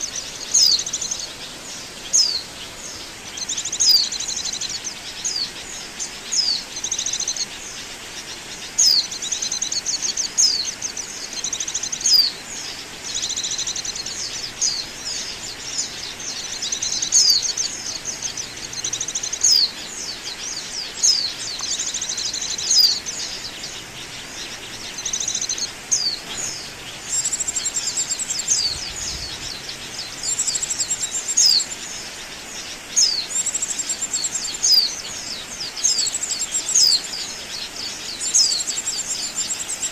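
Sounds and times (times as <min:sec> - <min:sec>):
bird twittering chirps and trills: 0:00.0 - 0:39.9
faint hiss: 0:00.0 - 0:39.9.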